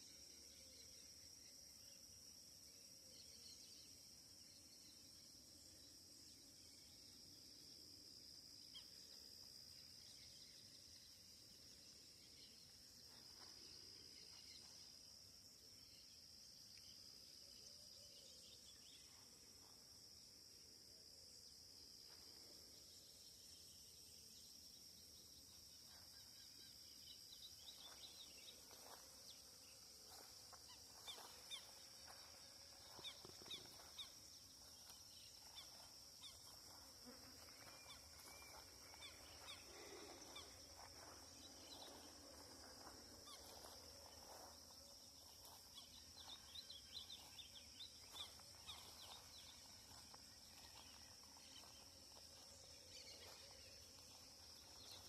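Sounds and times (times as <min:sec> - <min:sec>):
high-pitched insect drone: 0:25.9 - 0:55.0.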